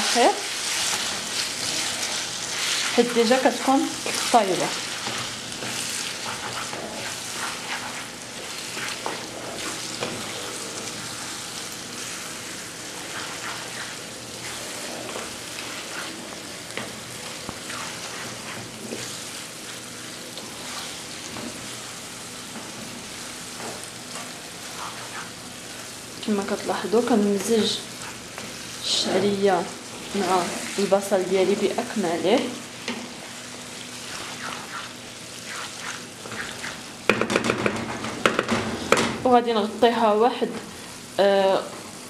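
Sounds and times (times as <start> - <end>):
food sizzling in a pan: 0.0 - 42.0
utensil scraping a pan: 4.0 - 10.7, 12.9 - 16.3, 34.0 - 36.8.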